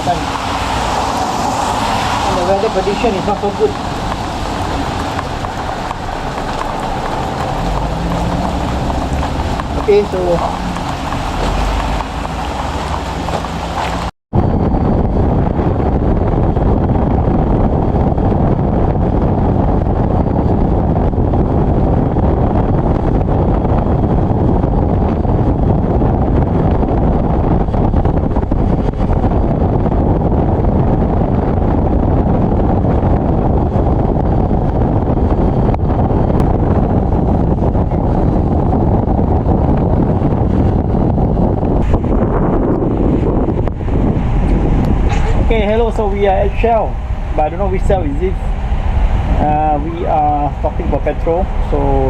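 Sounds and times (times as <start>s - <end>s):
wind rush over microphone: 0.0s - 52.0s.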